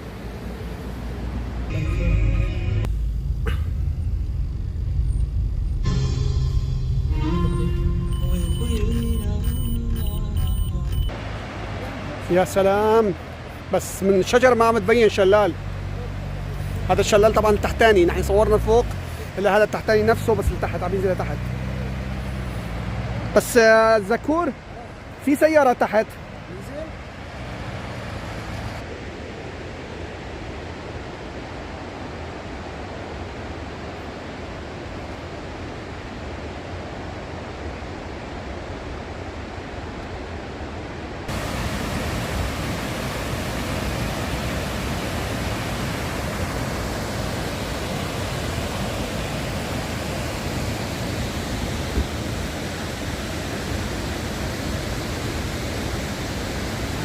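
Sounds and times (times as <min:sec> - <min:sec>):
waterfall rushing: 0:11.1 - 0:29.0, 0:38.9 - 0:57.0.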